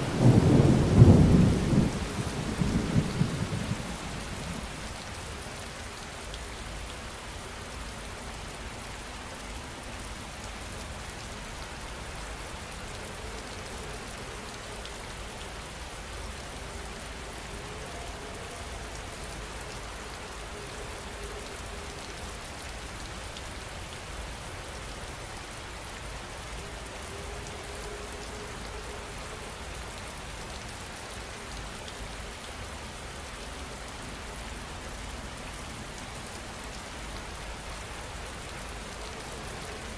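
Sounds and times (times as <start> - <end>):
heavy rain pattering: 0.0 - 6.6.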